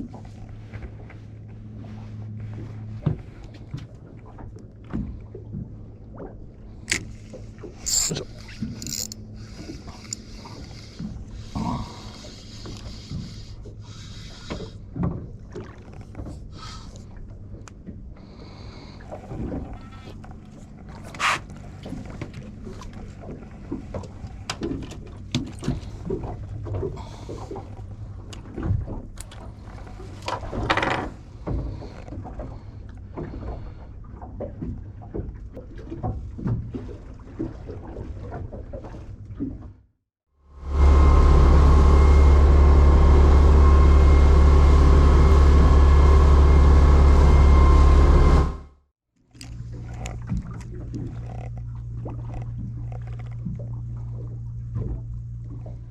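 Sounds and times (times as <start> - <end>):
boat engine rumble: 0.0 - 55.9
gear knocks and clicks: 7.8 - 9.2, 49.3 - 53.5
water rushing: 40.6 - 48.6.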